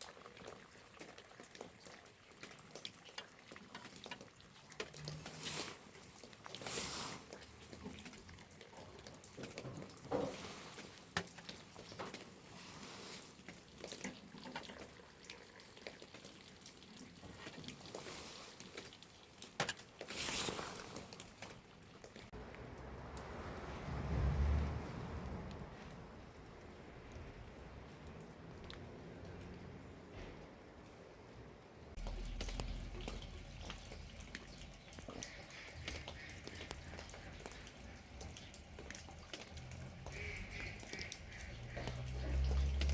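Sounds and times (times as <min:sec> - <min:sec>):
rain drops tapping: 0:00.0 - 0:30.0, 0:31.9 - 0:42.9
water dripping and splashing: 0:00.0 - 0:42.9
low rumble: 0:22.4 - 0:26.7.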